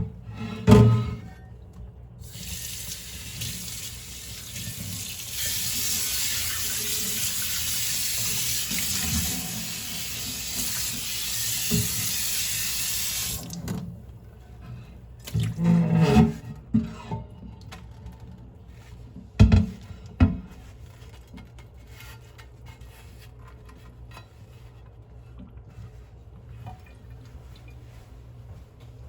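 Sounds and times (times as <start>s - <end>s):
tap running into sink: 4.4s - 13.8s.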